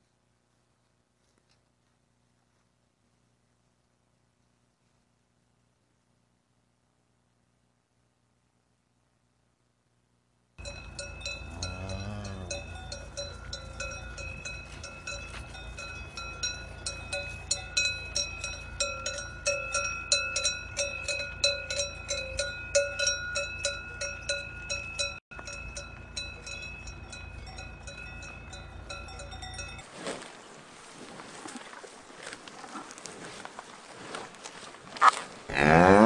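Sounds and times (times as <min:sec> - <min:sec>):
cowbells clanking: 0:10.6 - 0:29.9.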